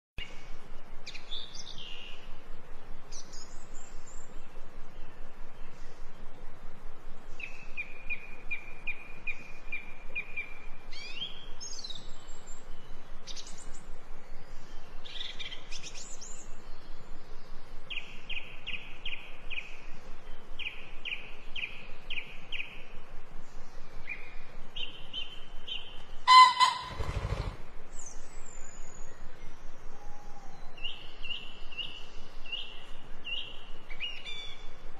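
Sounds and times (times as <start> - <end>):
small birds chirping: 1.0 - 2.3, 3.0 - 34.8
low bird call: 26.2 - 27.7.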